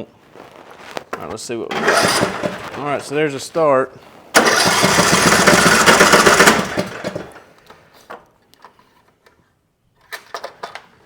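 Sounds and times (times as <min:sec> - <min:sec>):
engine cranking on starter: 0:01.7 - 0:03.2, 0:04.3 - 0:07.4.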